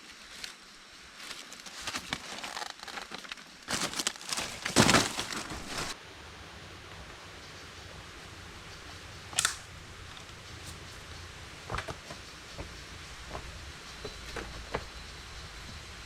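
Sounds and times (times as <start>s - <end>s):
rustling and crinkling: 0.0s - 6.0s.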